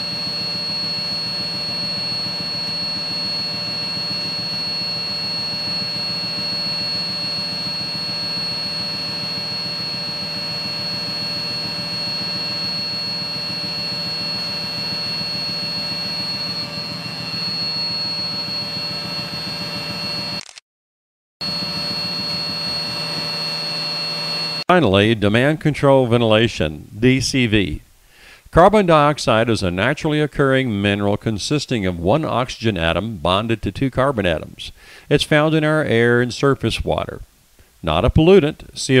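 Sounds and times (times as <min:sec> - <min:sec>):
high-pitched whine: 0:00.0 - 0:20.4, 0:21.4 - 0:24.9.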